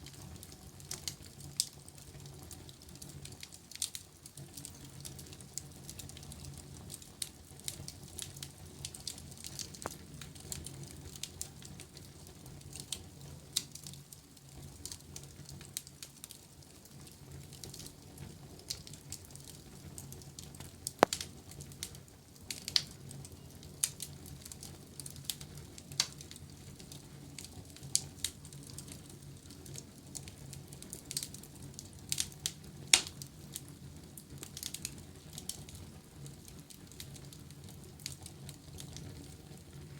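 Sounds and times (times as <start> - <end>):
fire crackling in fireplace: 0.0 - 39.9
sharp pops of fire: 9.6 - 10.1, 20.6 - 22.9, 32.1 - 33.2.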